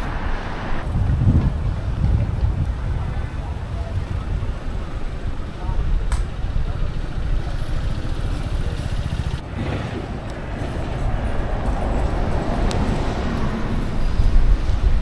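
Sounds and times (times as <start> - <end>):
road noise: 0.0 - 15.0
wind buffeting microphone: 0.0 - 15.0
sharp click: 6.1 - 6.4.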